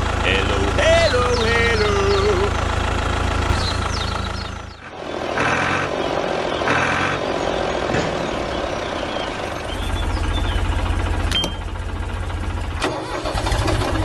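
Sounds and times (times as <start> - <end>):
small tractor engine running: 0.0 - 14.0.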